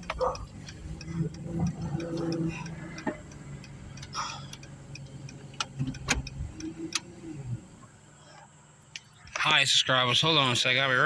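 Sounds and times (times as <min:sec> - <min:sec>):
sharp clicks: 0:00.0 - 0:07.1.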